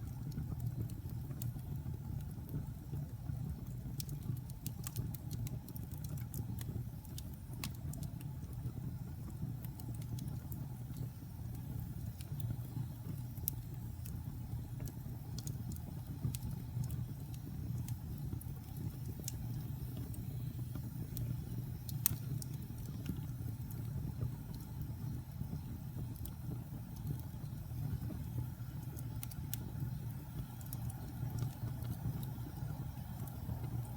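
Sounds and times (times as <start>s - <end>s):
fire rumbling in fireplace: 0.0s - 33.9s
logs crackling and popping: 0.0s - 33.9s.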